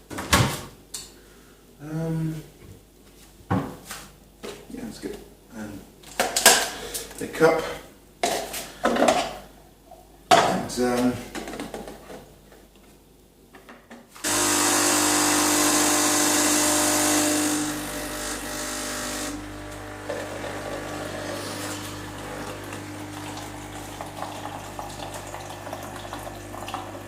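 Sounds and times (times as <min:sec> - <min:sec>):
coffee machine pump humming: 0:14.3 - 0:27.0
hot water running into cup: 0:19.2 - 0:27.0.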